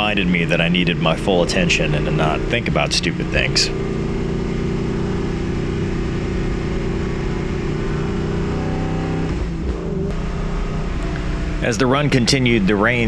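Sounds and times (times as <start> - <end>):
race car engine running: 0.0 - 13.0.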